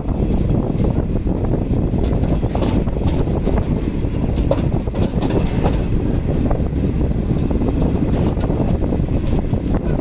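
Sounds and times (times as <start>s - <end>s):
train wheels rumbling: 0.0s - 10.0s
clicks and knocks from track: 1.9s - 6.2s, 7.3s - 9.5s.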